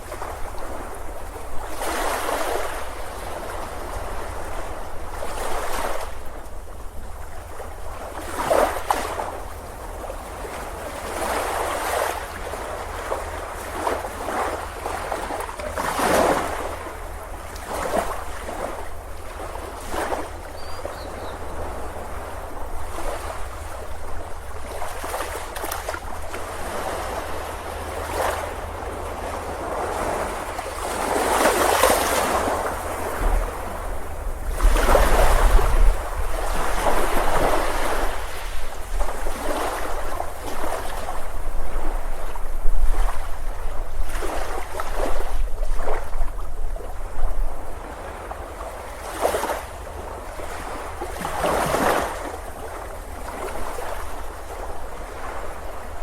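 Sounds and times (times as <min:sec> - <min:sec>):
wind rumble on microphone: 0:00.0 - 0:56.0
ocean surf breaking: 0:21.5 - 0:42.3.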